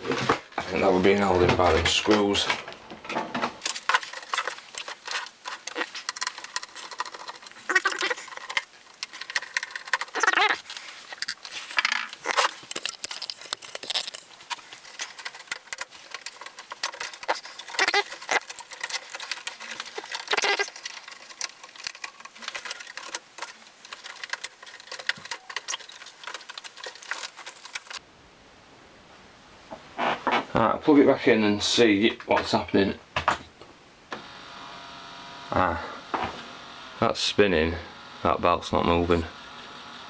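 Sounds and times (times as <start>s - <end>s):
hands clicking and tapping parts: 1.4s - 28.0s.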